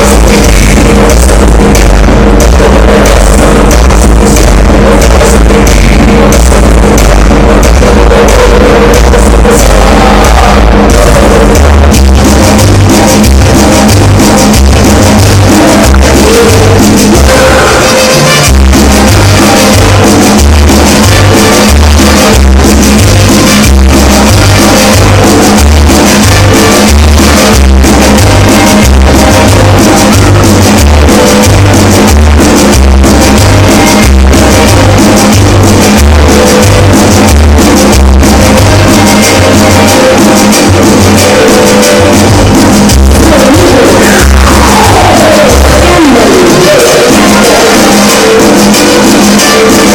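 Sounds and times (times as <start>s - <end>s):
loud dance music with pounding bass: 0.0s - 49.9s.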